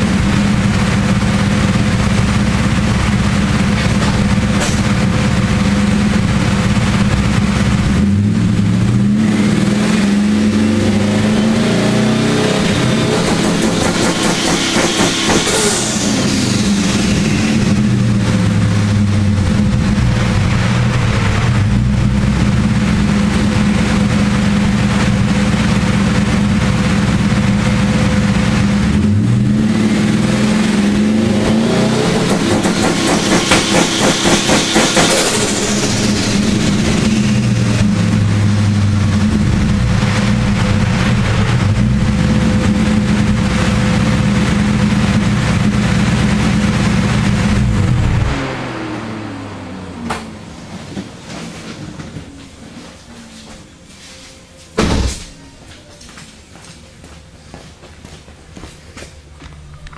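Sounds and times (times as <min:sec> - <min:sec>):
engine revving on launch limiter: 0:00.0 - 0:51.0
exhaust stuttering: 0:00.0 - 0:53.1.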